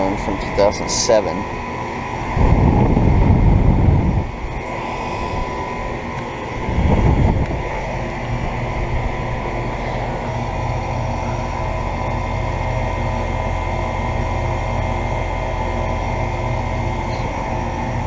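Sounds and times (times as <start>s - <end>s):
air conditioner units humming: 0.0s - 18.0s
wind buffeting microphone: 2.2s - 9.5s.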